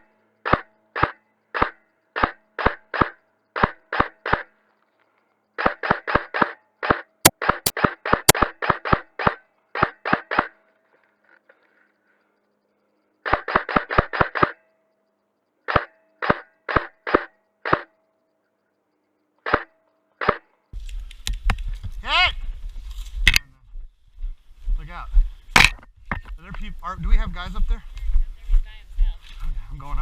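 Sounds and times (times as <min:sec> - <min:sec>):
airsoft gun shots: 0:00.4 - 0:04.5, 0:05.6 - 0:10.6, 0:13.2 - 0:14.6, 0:15.7 - 0:17.9, 0:19.5 - 0:20.4, 0:25.5 - 0:25.8.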